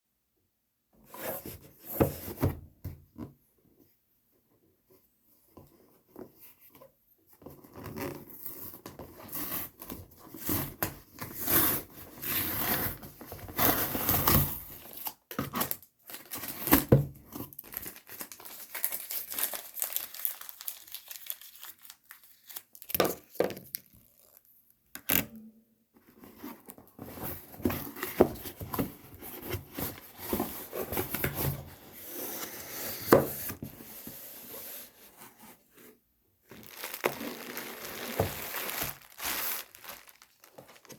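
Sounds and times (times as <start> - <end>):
packaging tearing and crinkling: 17.5 - 24.4, 36.5 - 40.9.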